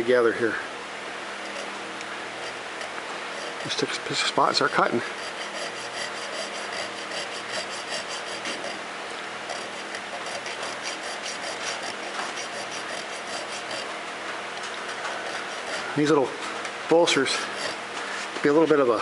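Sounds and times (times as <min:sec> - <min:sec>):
hand file rasping on metal: 0:01.4 - 0:08.8, 0:09.4 - 0:14.0, 0:14.7 - 0:16.2, 0:17.0 - 0:17.9.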